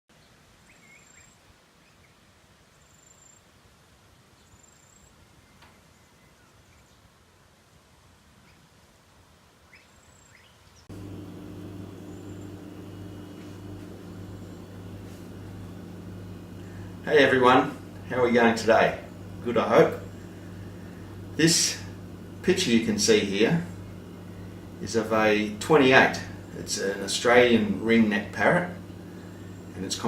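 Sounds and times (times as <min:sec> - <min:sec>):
steady low hum: 0:10.9 - 0:30.0.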